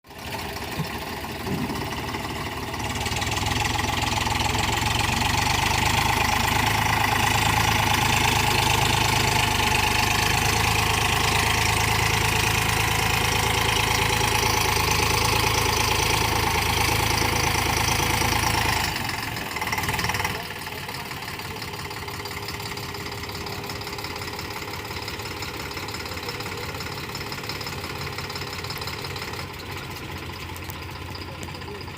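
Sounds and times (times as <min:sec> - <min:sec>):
tractor diesel engine straining: 0:00.0 - 0:31.9.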